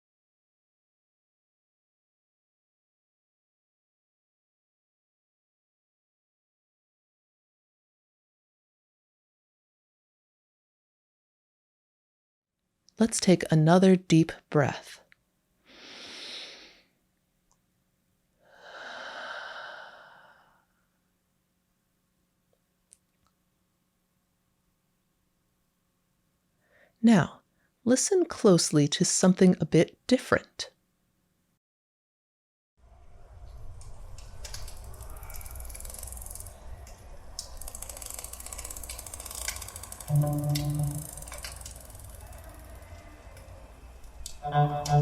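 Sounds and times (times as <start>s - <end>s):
person breathing deeply: 15.6s - 17.0s, 18.4s - 21.0s, 34.9s - 36.2s
crackle of small clicks: 33.8s - 44.4s.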